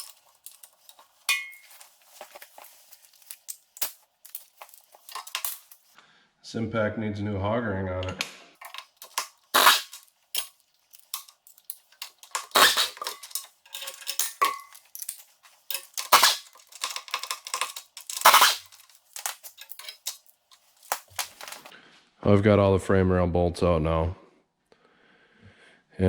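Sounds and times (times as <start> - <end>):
metallic clanks of hand tools: 0.0 - 5.9, 8.6 - 21.7.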